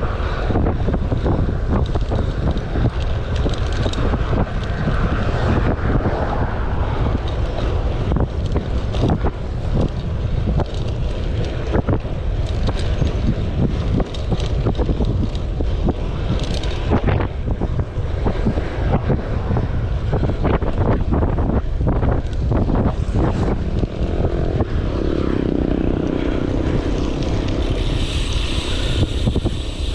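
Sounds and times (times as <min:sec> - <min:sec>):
wind buffeting microphone: 0:00.0 - 0:29.9.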